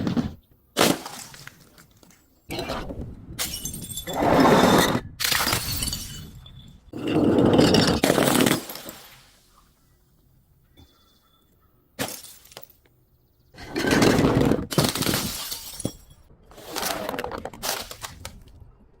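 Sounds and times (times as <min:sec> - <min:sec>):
glass shattering and crunching: 0:00.8 - 0:02.2, 0:03.4 - 0:04.2, 0:05.2 - 0:09.2, 0:12.0 - 0:12.9, 0:13.8 - 0:18.3
glass bottle breaking: 0:03.4 - 0:04.2, 0:05.2 - 0:06.8, 0:12.0 - 0:12.8, 0:14.7 - 0:16.3.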